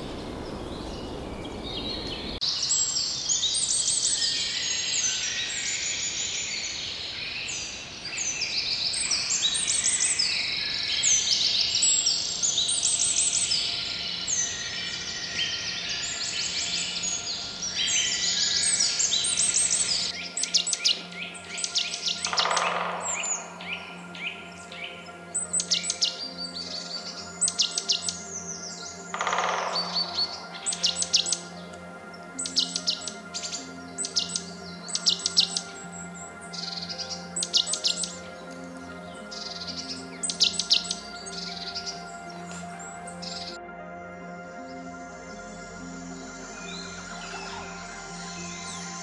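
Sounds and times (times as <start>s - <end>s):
rapid chirping trills: 0.0s - 2.4s, 11.9s - 43.6s
long falling bird calls: 0.0s - 43.6s, 44.6s - 49.0s
chorus of birdsong: 0.0s - 49.0s.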